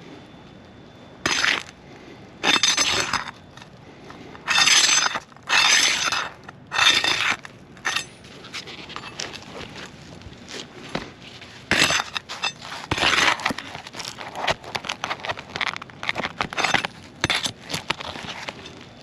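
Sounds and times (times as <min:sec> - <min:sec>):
roof shingles scraping and crackling: 0:04.5 - 0:19.0.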